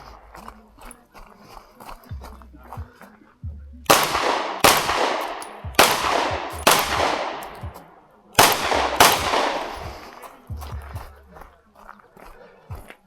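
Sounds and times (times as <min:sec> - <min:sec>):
pistol shots echoing: 0:03.9 - 0:10.5.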